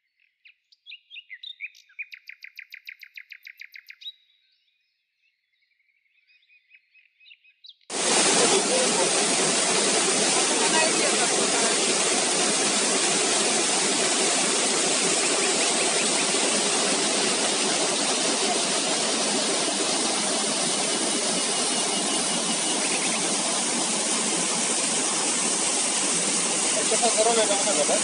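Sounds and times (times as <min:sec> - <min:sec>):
river rushing: 0:07.9 - 0:28.0.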